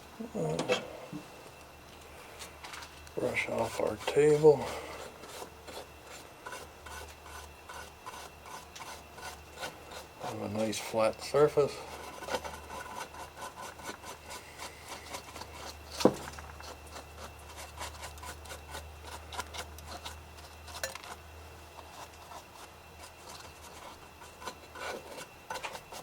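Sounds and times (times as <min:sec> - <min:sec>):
brush sweeping a table: 0:03.2 - 0:19.2.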